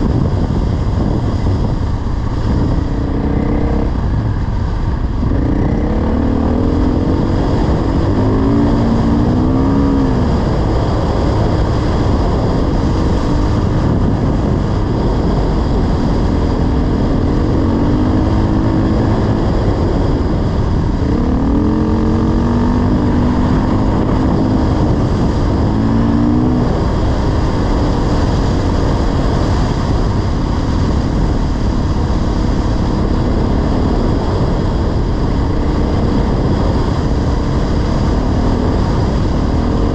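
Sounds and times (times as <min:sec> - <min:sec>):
loud rushing noise: 0:00.0 - 0:39.9
dirt bike engine revving: 0:02.5 - 0:29.8.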